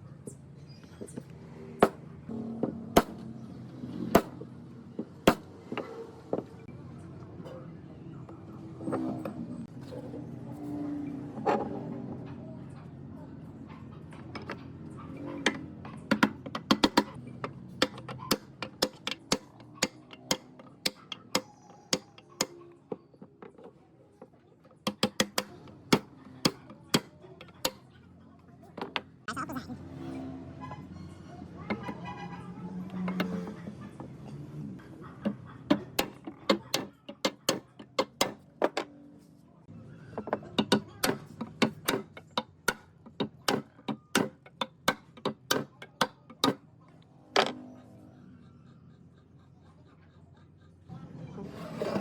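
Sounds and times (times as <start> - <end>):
hand tools tapping on metal: 1.0 - 2.0, 2.7 - 3.2, 4.1 - 4.4, 5.0 - 6.5, 15.4 - 23.8, 24.6 - 27.9, 35.1 - 38.9, 40.2 - 46.6.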